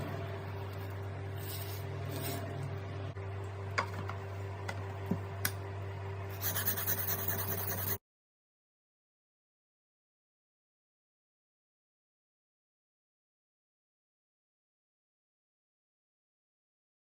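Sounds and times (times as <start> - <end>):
steady low hum: 0.0 - 8.0
knife rubbing on whetstone: 1.4 - 2.5, 6.3 - 8.0.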